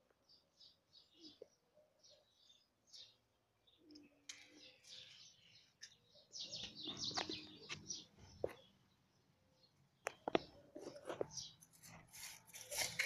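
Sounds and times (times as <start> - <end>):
small birds chirping: 0.0 - 13.0
scuffling rustle with clicks: 10.3 - 13.0.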